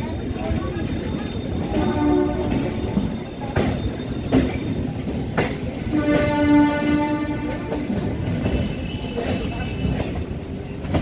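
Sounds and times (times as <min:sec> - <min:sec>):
train rumbling on track: 0:00.0 - 0:11.0
wheels clacking over rail joints: 0:00.0 - 0:11.0
train horn: 0:01.8 - 0:02.8, 0:05.8 - 0:08.0.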